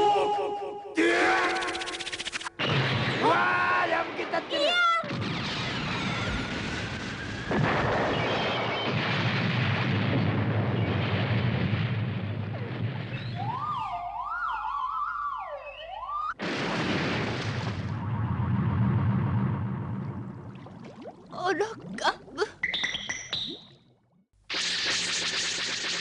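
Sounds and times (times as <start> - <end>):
explosion rumble: 5.1 - 13.6, 16.4 - 20.7
warbling siren-like effect: 13.4 - 16.4.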